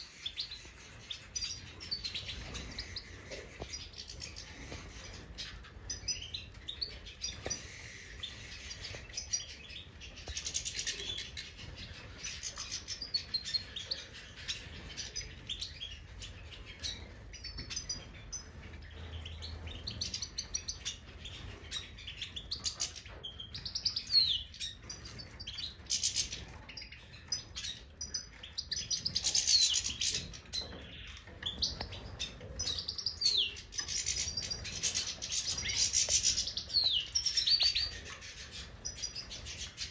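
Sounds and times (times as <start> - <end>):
goldfinches twittering and chirping: 0.0 - 39.9.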